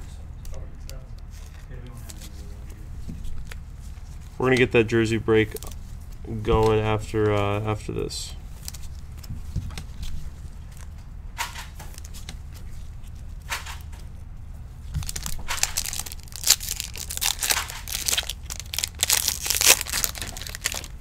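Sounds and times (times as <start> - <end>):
foil wrapper crinkling and tearing: 14.9 - 21.0.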